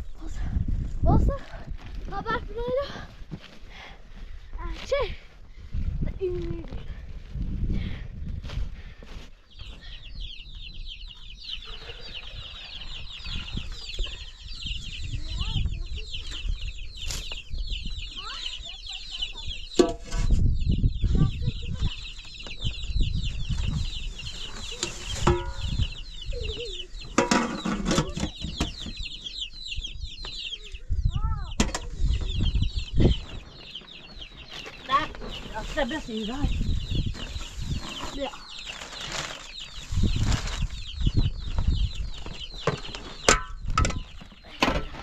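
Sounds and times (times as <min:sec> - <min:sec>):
chickens peeping and clucking: 0:09.0 - 0:45.0.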